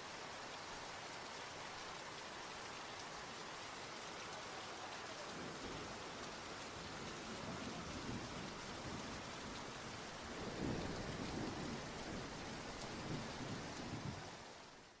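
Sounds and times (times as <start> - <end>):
rain falling: 0.0 - 15.0
low rolling thunder: 10.3 - 14.2.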